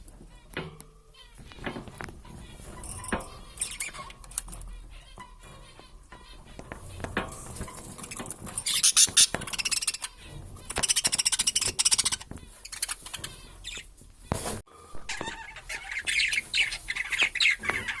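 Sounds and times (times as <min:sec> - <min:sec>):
budgerigars chattering: 0:15.1 - 0:18.0.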